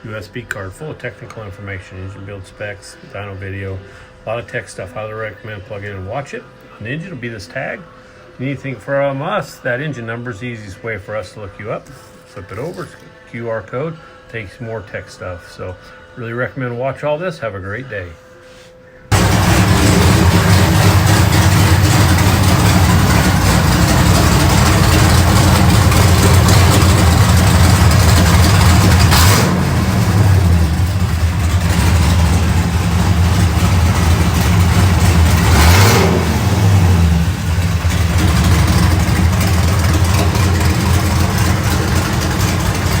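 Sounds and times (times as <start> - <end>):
engine idling and revving: 19.1 - 43.0.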